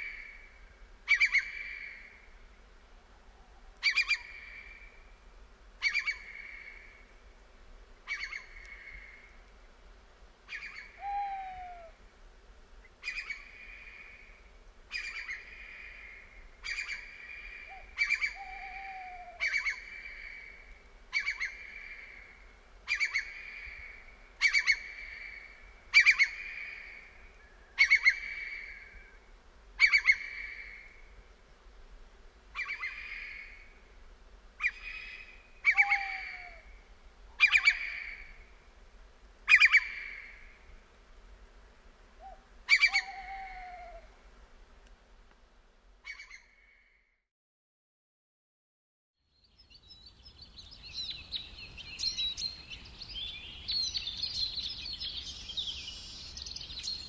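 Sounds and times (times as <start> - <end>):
bird harsh call: 34.6 - 36.7, 42.2 - 44.1.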